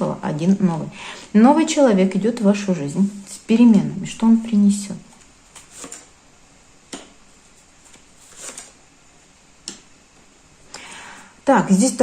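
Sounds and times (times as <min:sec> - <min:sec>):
cards clicking and sliding on table: 0:05.5 - 0:06.1, 0:07.8 - 0:08.8.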